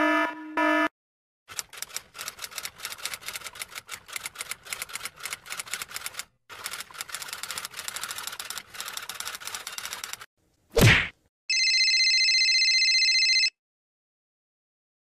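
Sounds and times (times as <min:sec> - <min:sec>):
rapid keyboard typing: 0:01.5 - 0:10.3.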